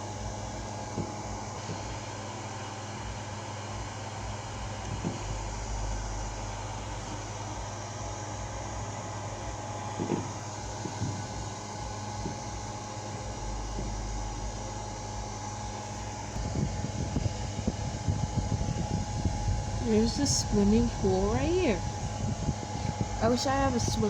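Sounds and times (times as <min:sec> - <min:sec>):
mechanical hum: 0:00.0 - 0:24.0
thin steady tone: 0:04.4 - 0:24.0
low thumps: 0:09.5 - 0:24.0.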